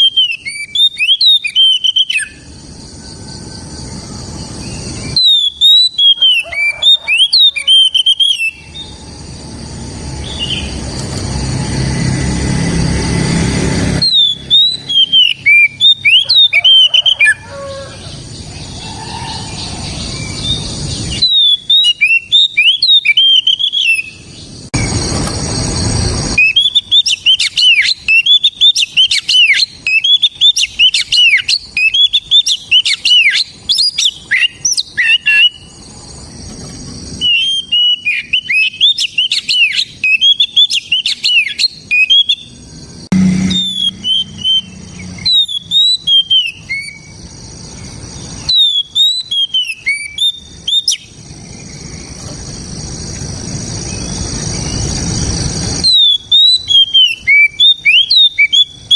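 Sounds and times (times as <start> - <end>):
bird singing whistled notes: 0.0 - 9.4, 10.1 - 11.0, 13.8 - 17.8, 18.4 - 25.0, 26.3 - 35.8, 37.2 - 42.6, 43.2 - 52.2, 55.7 - 58.9
burst of rushing noise: 9.1 - 14.2, 24.7 - 26.7.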